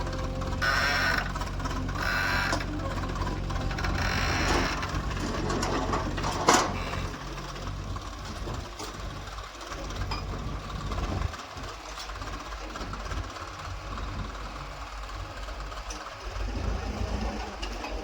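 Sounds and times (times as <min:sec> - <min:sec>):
diesel engine running: 0:00.0 - 0:18.0
machinery clattering: 0:00.0 - 0:18.0.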